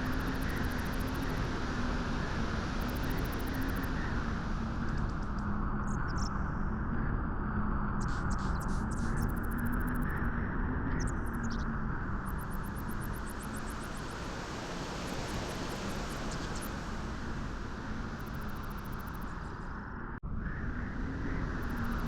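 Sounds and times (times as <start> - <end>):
beach wind rushing: 12.6 - 19.8.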